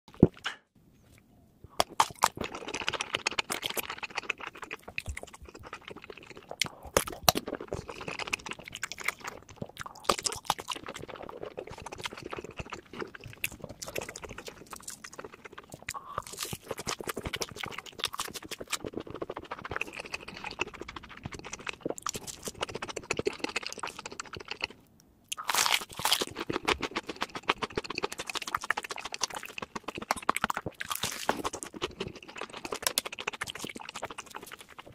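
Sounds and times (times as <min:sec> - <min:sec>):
chewing crunchy food: 0:01.7 - 0:34.9.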